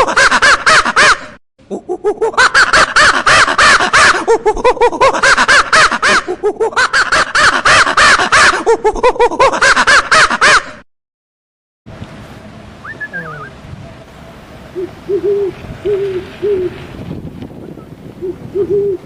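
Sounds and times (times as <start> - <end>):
monkey calling: 12.8 - 13.6, 14.7 - 16.8.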